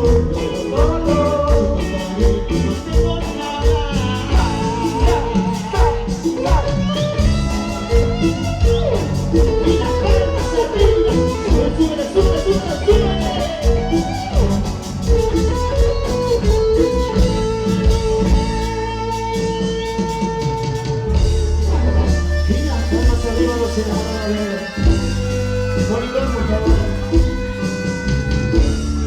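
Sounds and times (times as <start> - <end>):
bass: 0.0 - 29.0
drum beat: 0.0 - 29.0
lead guitar melody: 0.0 - 29.0.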